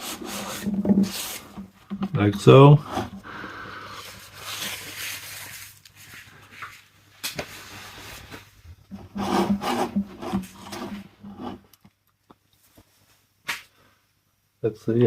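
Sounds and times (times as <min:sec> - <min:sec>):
scraping plastic bottle: 0:00.0 - 0:03.3, 0:08.9 - 0:11.8.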